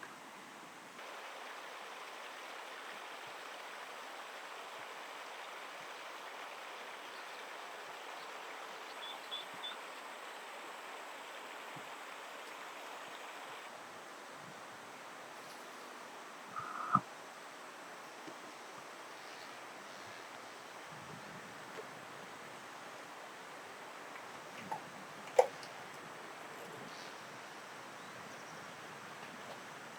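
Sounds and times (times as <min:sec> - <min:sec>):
stream water flowing: 0:01.0 - 0:19.8, 0:20.4 - 0:28.0
short high chirps: 0:16.6 - 0:17.0.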